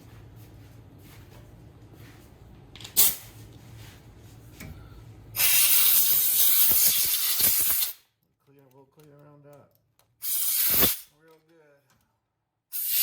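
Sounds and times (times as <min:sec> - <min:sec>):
quiet handling sounds: 0:00.0 - 0:05.1, 0:11.1 - 0:12.3
compressed-air blowgun hissing: 0:05.4 - 0:08.0, 0:10.2 - 0:11.0, 0:12.7 - 0:13.0.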